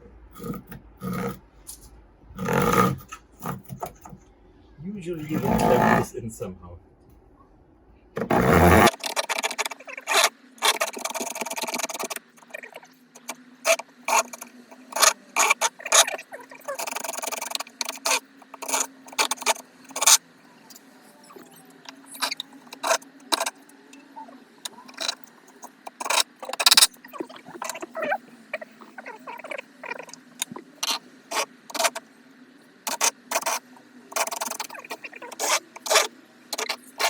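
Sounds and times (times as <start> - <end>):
blade scraping: 2.4 - 4.1, 5.2 - 6.1, 8.2 - 20.2, 24.7 - 27.9, 32.9 - 37.0.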